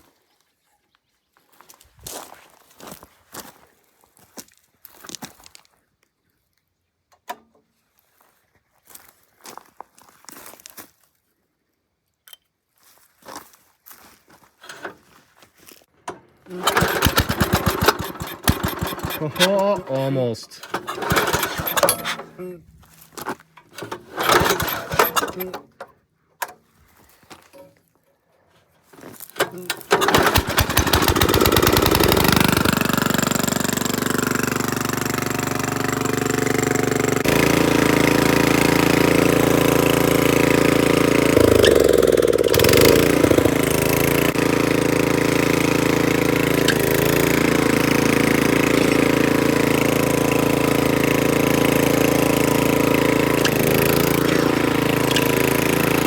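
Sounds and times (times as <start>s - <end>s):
tiller engine running: 14.6s - 15.0s, 16.0s - 22.6s, 23.3s - 26.6s, 29.4s - 56.0s
engine firing clicks: 16.0s - 22.3s, 23.6s - 25.8s, 29.4s - 39.2s, 40.5s - 44.6s, 46.4s - 47.6s, 53.3s - 56.0s.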